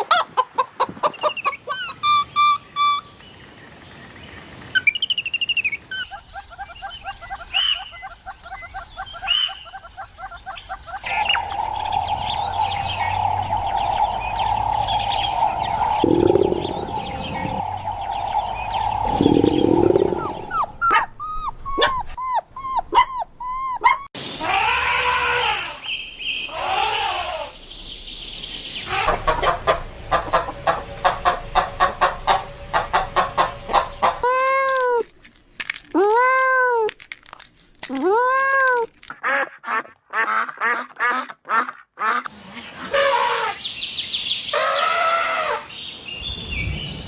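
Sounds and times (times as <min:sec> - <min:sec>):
bird chirping: 0:01.2 - 0:21.9
steady hum: 0:11.0 - 0:20.8
short arched animal calls: 0:11.0 - 0:21.0.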